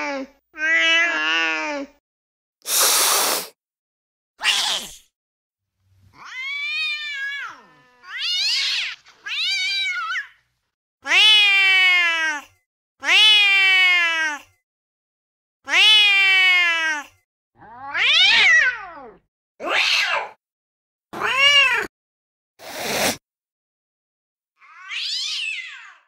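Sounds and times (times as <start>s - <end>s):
cat meowing yowls: 0.6s - 1.8s, 6.2s - 10.4s, 11.0s - 14.5s, 15.7s - 20.4s, 21.2s - 21.9s, 24.6s - 26.0s
harsh cat hiss burst: 2.6s - 3.6s, 22.6s - 23.2s.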